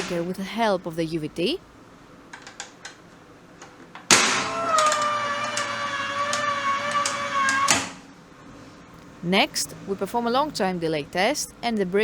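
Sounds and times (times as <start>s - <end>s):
steady whine: 3.6s - 12.0s
circuit breaker clack: 4.0s - 8.0s.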